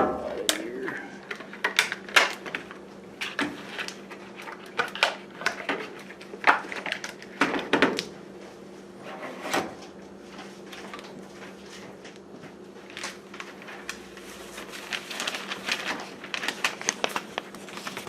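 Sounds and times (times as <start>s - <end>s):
faint steady hum: 0.0s - 7.4s.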